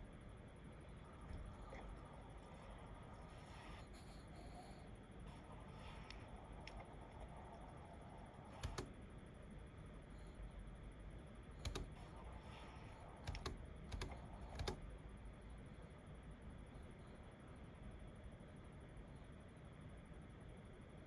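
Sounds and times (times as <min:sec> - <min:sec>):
computer keyboard keystrokes: 0:08.5 - 0:08.9, 0:11.6 - 0:14.8.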